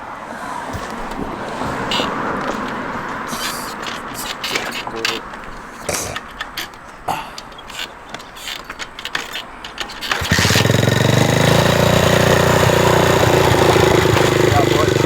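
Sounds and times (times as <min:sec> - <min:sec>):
light clicks and knocks: 0:00.8 - 0:10.3
dirt bike engine running: 0:09.8 - 0:15.0.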